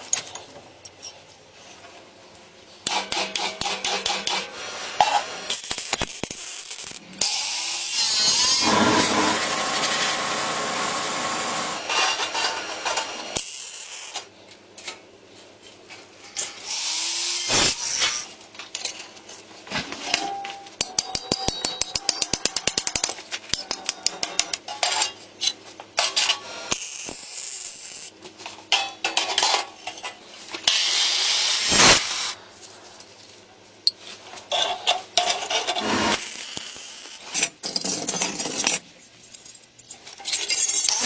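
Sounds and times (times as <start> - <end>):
hand tool scraping and rubbing: 30.6 - 32.4.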